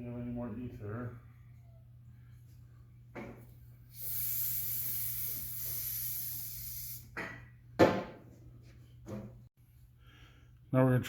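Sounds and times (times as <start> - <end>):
aerosol can spraying hiss: 3.9 - 7.1.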